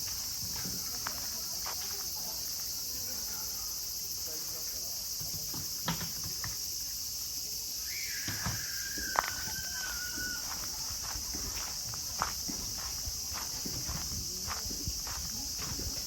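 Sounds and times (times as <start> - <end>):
crickets shrilling: 0.0 - 16.0.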